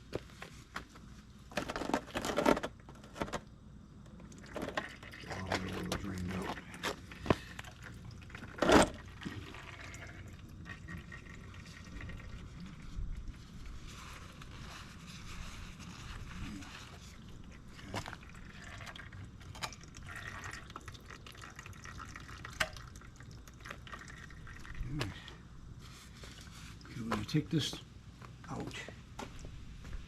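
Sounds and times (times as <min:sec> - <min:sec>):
oil dripping into pan: 0:18.2 - 0:24.8.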